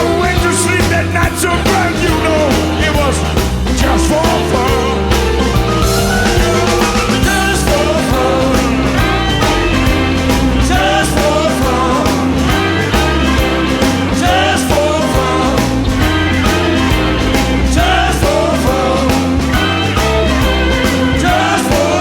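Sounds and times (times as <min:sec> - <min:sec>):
blues-rock band playing: 0:00.0 - 0:22.0
lead guitar bending notes: 0:04.6 - 0:21.6.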